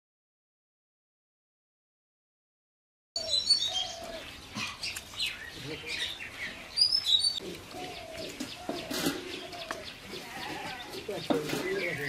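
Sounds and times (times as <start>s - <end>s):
outdoor background noise: 3.2s - 12.0s
small birds chirping: 3.2s - 12.0s.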